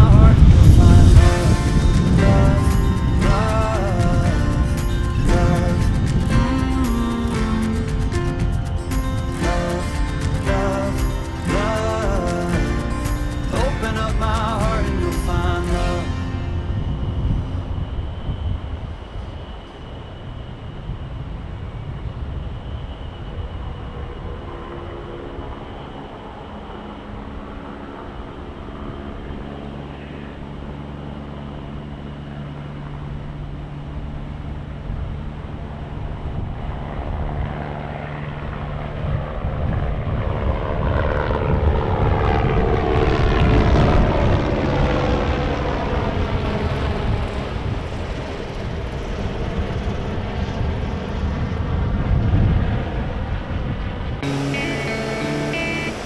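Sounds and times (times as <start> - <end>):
aircraft engine drone: 0.0 - 56.0.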